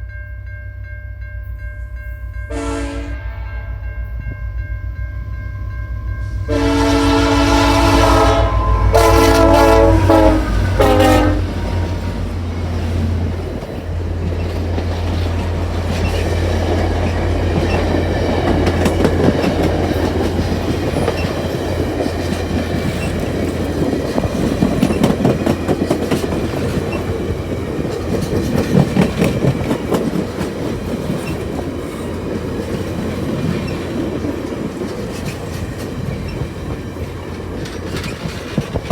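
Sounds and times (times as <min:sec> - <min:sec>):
locomotive air horn blasts: 0:02.5 - 0:03.8, 0:06.2 - 0:12.2
train wheels clacking over rail joints: 0:10.1 - 0:38.9.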